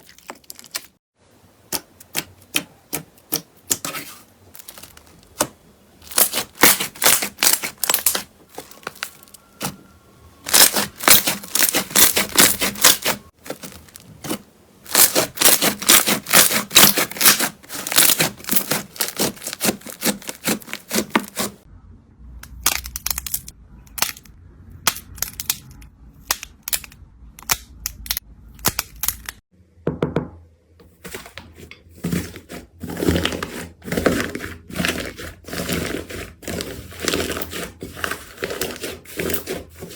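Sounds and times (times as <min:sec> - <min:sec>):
slime crackling and popping: 0:04.6 - 0:09.8, 0:10.5 - 0:21.5.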